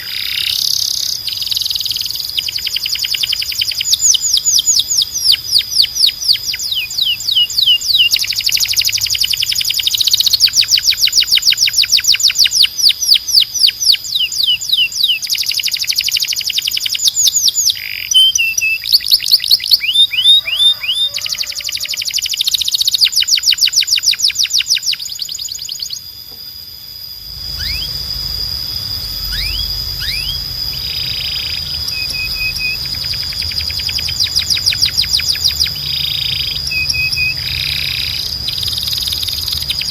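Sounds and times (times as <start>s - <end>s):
canary singing trills: 0.0s - 39.9s
low hum: 25.9s - 39.9s.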